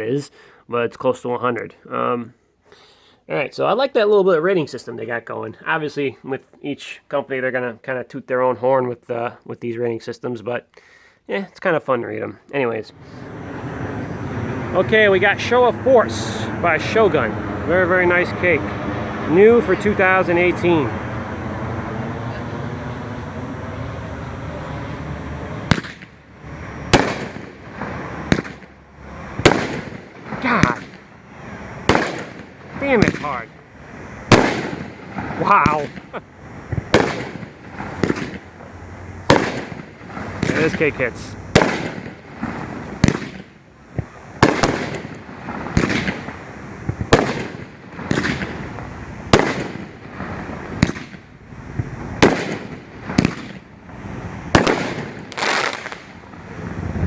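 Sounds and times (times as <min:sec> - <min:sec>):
fireworks reports echoing: 0:03.3 - 0:10.7, 0:11.3 - 0:56.9.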